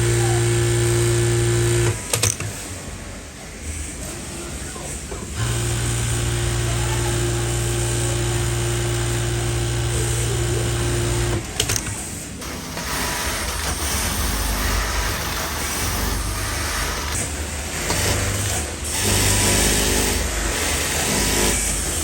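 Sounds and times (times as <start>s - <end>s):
factory machinery humming: 3.6s - 22.0s
noisy machine running: 4.8s - 22.0s.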